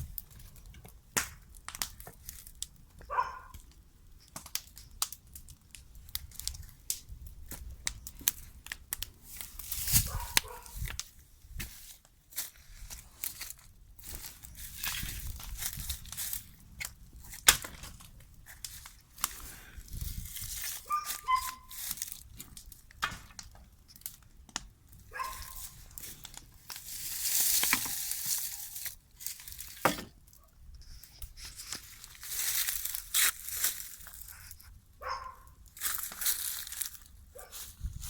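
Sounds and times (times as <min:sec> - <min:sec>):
sharp cracks: 0:16.1 - 0:18.1
paper and cardboard crumpling: 0:17.3 - 0:22.4, 0:25.1 - 0:30.1, 0:31.4 - 0:34.6, 0:35.8 - 0:38.0.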